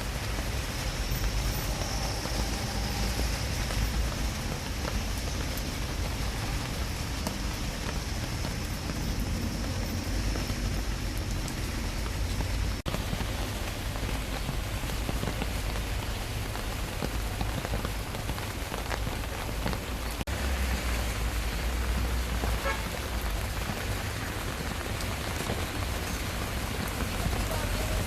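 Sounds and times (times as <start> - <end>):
low rumble: 0.0 - 15.0
rain falling: 0.0 - 28.0.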